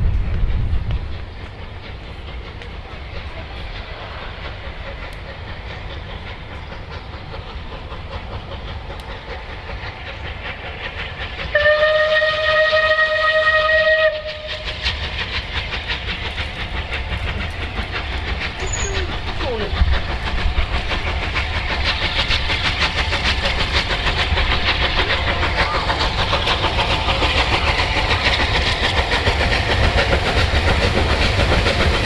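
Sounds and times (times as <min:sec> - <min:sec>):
passing train clatter: 0:00.0 - 0:32.0
steam locomotive rumble: 0:00.0 - 0:32.0
train whistle blast: 0:11.5 - 0:14.7.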